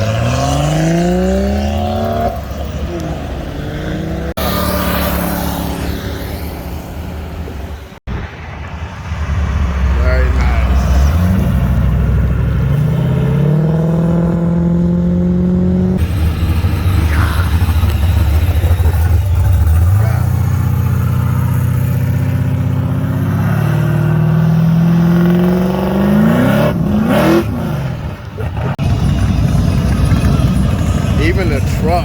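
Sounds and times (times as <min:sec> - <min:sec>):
car engines accelerating: 0:00.0 - 0:32.0.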